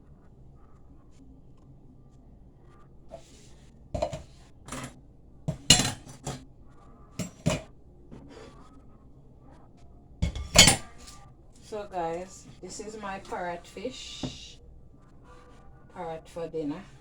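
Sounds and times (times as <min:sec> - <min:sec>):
dishes and cutlery clinking: 0:04.0 - 0:06.4, 0:07.2 - 0:08.6, 0:10.2 - 0:11.2.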